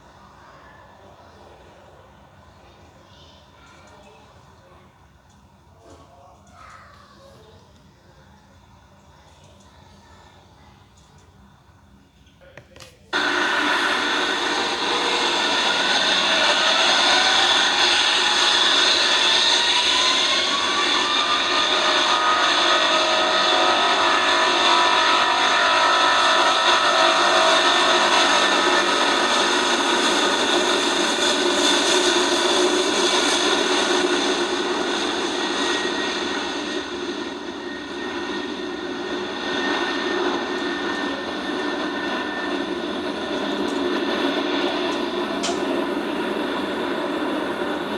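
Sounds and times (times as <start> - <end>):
jet engines whining: 13.1 - 47.9.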